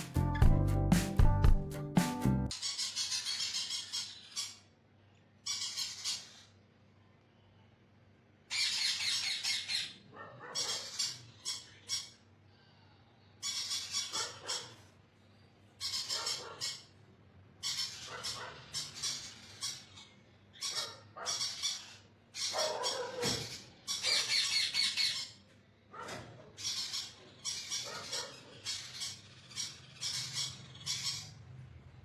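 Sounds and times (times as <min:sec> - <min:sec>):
parrot squawking: 0:02.5 - 0:04.7, 0:05.4 - 0:06.5, 0:08.5 - 0:12.2, 0:13.4 - 0:14.9, 0:15.8 - 0:17.0, 0:17.6 - 0:25.4, 0:26.6 - 0:31.4.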